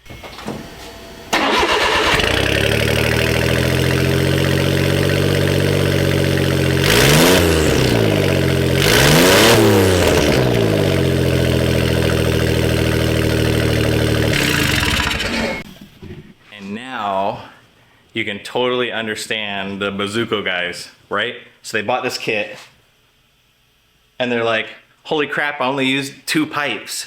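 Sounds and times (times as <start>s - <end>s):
small truck engine idling: 0.0s - 8.8s, 9.8s - 15.8s
engine revving: 0.0s - 15.7s.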